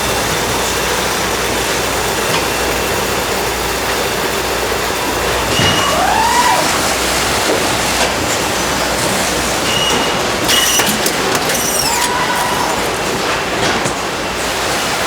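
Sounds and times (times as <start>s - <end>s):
factory machinery running: 0.0s - 15.0s
machine squeals: 8.9s - 14.0s
sharp clatter: 9.7s - 14.1s.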